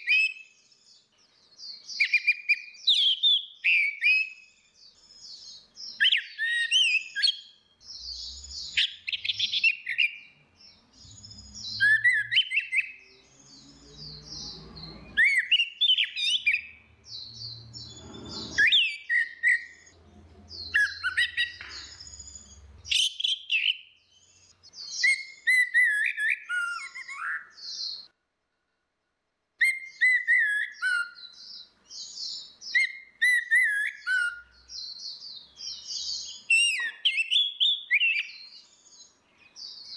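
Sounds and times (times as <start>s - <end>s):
thrushes singing: 0.0s - 28.1s.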